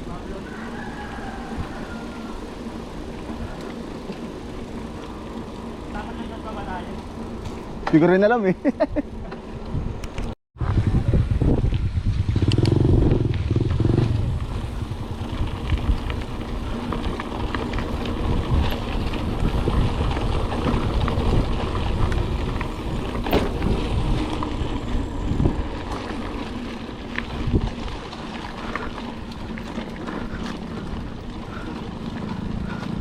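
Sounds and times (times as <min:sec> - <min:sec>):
bike rumbling over rough ground: 0:00.0 - 0:33.0
bike rattling and knocking: 0:02.6 - 0:10.4, 0:11.6 - 0:33.0
wind on microphone: 0:09.7 - 0:28.8.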